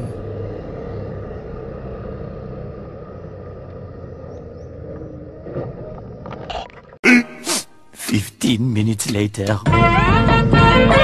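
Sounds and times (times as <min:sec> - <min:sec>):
low outdoor rumble: 0:00.0 - 0:07.0.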